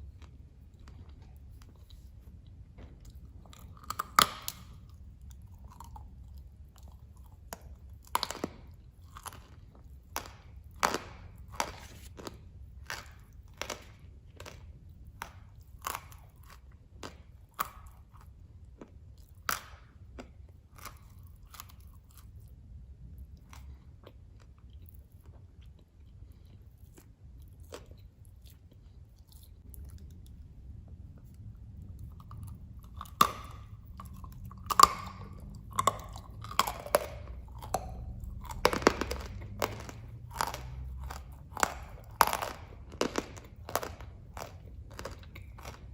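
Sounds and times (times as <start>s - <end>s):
person crunching hard clay: 10.0s - 12.2s, 32.1s - 45.9s.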